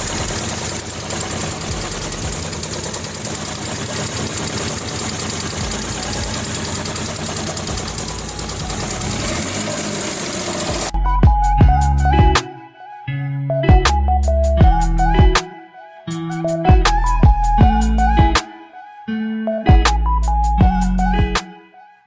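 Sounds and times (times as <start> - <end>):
engine running steadily: 0.0 - 12.4.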